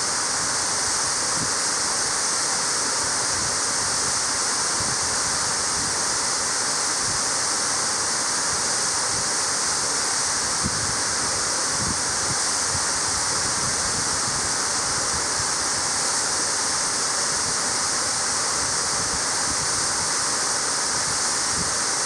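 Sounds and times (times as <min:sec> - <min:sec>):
waterfall rushing water: 0:00.0 - 0:22.0.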